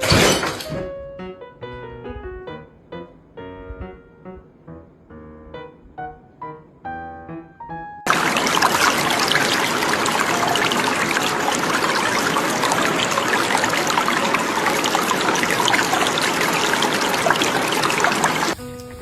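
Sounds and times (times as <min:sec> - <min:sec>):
rushing water: 0:08.1 - 0:18.6
small water splashes: 0:08.1 - 0:18.6.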